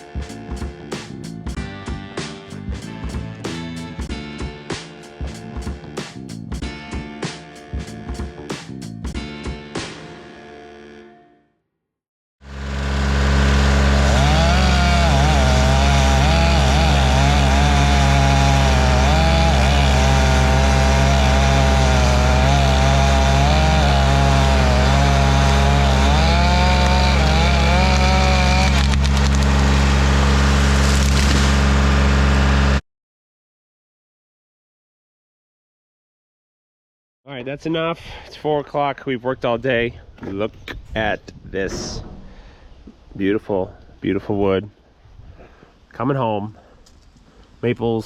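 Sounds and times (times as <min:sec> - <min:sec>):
chainsaw running: 0:00.0 - 0:01.6, 0:02.2 - 0:08.6, 0:09.2 - 0:11.2, 0:12.4 - 0:32.8.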